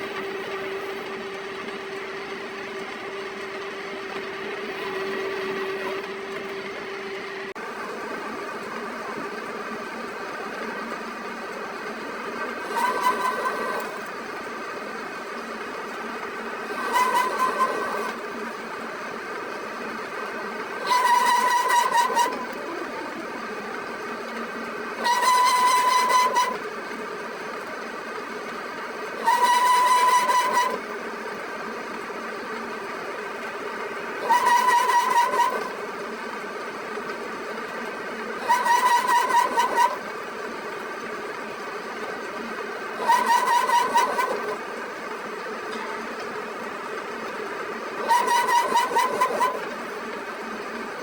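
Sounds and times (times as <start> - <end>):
metalworking machine running: 0.0 - 51.0
loud pitched machine squeal: 4.6 - 7.4, 12.6 - 14.1, 16.7 - 18.2, 20.8 - 22.6, 25.0 - 26.6, 29.2 - 30.8, 34.2 - 35.8, 38.4 - 40.1, 43.0 - 44.6, 48.0 - 49.8.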